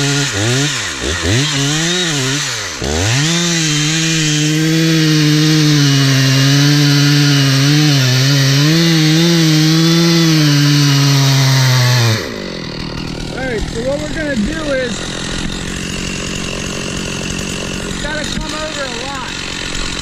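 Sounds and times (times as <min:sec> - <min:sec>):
chainsaw cutting wood: 0:00.0 - 0:20.0.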